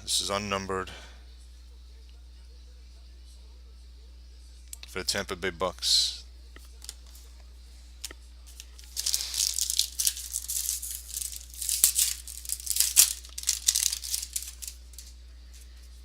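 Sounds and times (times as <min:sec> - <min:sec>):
cards being handled: 0:06.6 - 0:07.4, 0:08.0 - 0:16.0
foil wrapper crinkling: 0:08.5 - 0:15.7.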